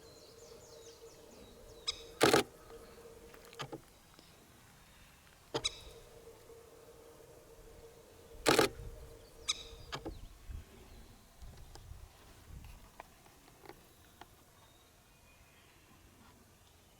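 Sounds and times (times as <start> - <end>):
faint steady hum: 0.0 - 16.9
camera shutter clicks: 2.2 - 2.6, 8.4 - 8.8.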